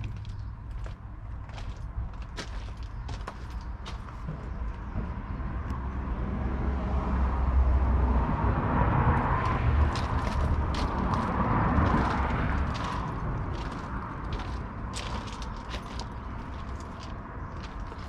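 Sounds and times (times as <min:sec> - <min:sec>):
tractor diesel engine rumbling: 0:09.8 - 0:18.0.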